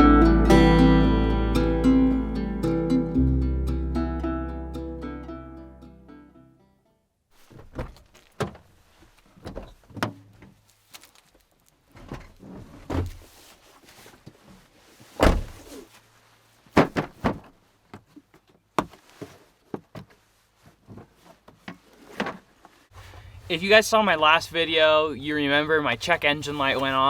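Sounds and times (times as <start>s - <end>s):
knocks and thunks of handling: 7.4s - 15.9s, 16.7s - 22.8s.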